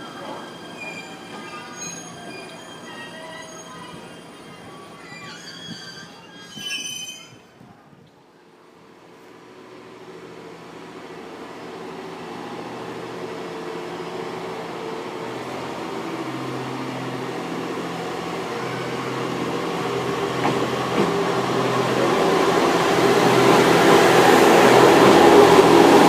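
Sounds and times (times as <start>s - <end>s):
diesel railcar engine humming: 0.0s - 26.0s.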